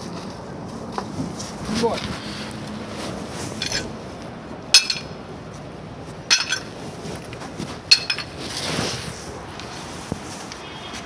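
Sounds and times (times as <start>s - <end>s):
metal tool striking with clinking ring: 4.8s - 5.2s, 6.3s - 6.7s, 7.9s - 8.3s.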